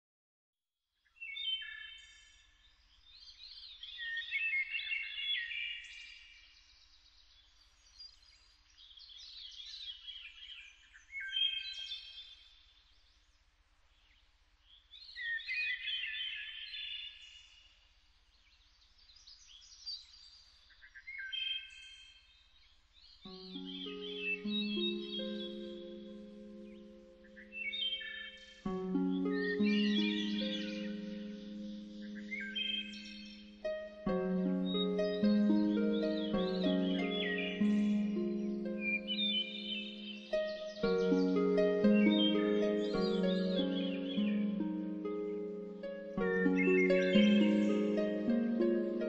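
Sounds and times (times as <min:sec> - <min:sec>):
bird warbling and chirping: 0:23.3 - 0:49.0.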